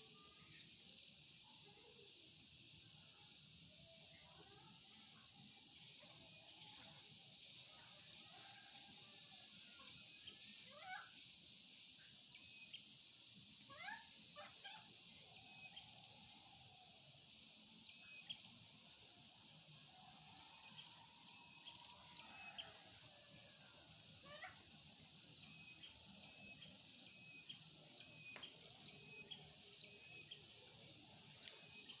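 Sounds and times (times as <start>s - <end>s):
steady high hiss: 0.0s - 32.0s
faint gliding animal cries: 10.7s - 11.2s, 13.7s - 17.0s, 20.0s - 24.7s.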